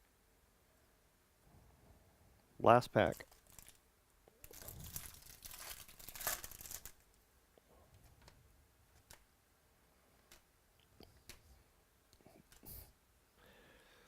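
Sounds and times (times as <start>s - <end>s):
foil wrapper tearing and crinkling: 3.2s - 3.8s, 4.4s - 7.0s
faint clicks: 10.2s - 11.5s.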